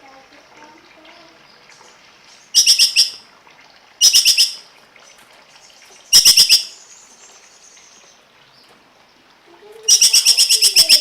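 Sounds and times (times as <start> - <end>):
songbird calling: 1.5 - 3.2, 4.0 - 4.6, 5.6 - 8.7, 9.6 - 11.0.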